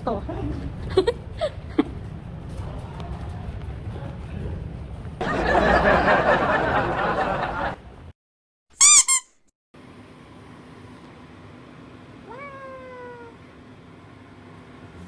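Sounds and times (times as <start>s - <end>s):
squeaky cartoon chirps: 8.8s - 9.4s.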